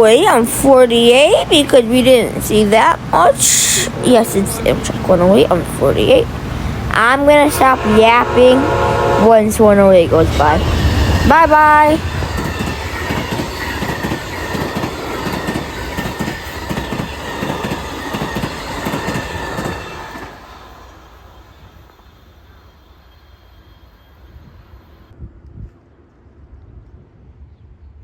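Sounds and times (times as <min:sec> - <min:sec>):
train wheels clicking: 0:00.6 - 0:23.4
train wheel squeal: 0:07.1 - 0:25.2.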